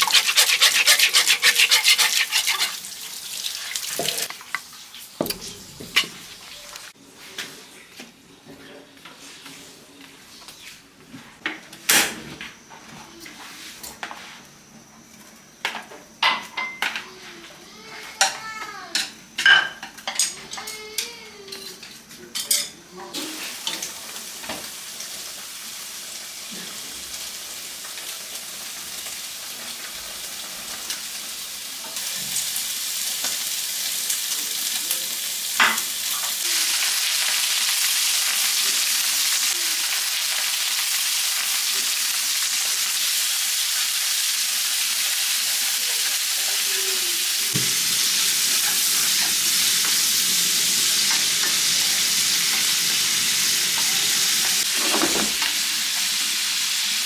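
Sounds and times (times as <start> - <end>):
utensil knocking pan: 0.0 - 2.8
food sizzling in a pan: 0.0 - 7.3, 12.6 - 57.0.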